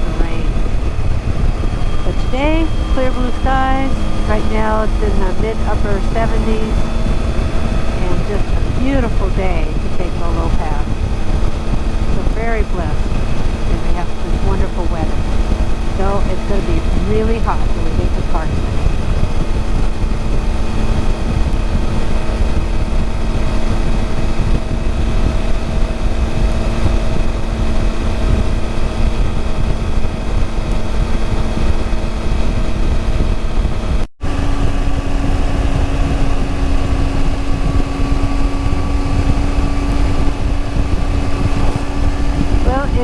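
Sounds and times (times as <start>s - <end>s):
motorcycle engine cruising: 0.0s - 43.0s
wind noise on microphone: 0.0s - 43.0s.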